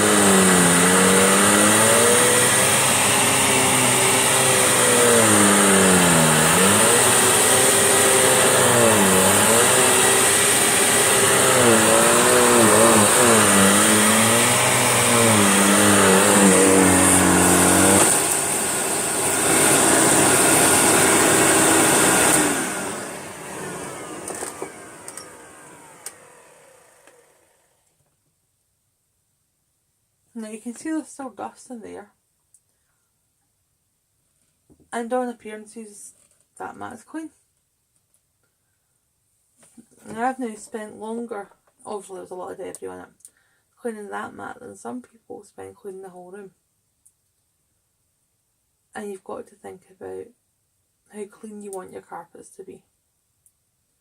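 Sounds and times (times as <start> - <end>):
vacuum cleaner running: 0.0 - 27.9
vacuum cleaner winding down: 0.0 - 27.9.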